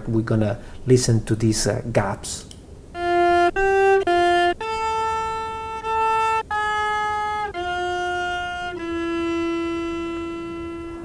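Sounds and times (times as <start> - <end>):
resynthesized bowed cello notes: 2.9 - 11.0.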